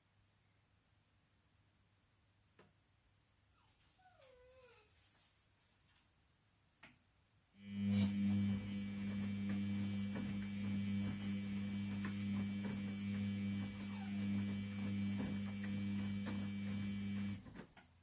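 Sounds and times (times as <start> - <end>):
washing machine motor hum: 7.6 - 17.6.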